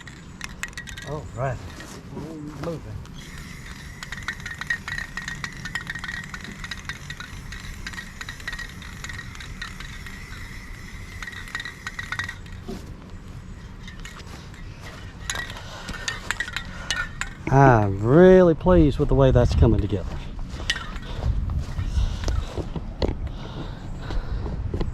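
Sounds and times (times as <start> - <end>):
thin steady high tone: 0.0 - 18.5.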